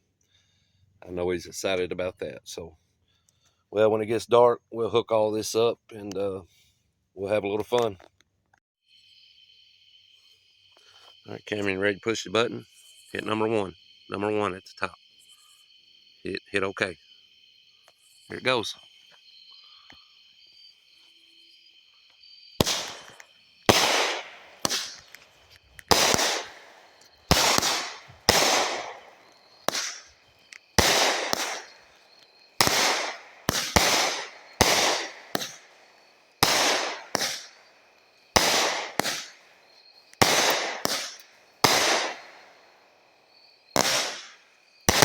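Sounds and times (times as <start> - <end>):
firework cake bangs: 22.6 - 37.6, 38.3 - 39.5, 40.2 - 42.5, 43.7 - 45.0.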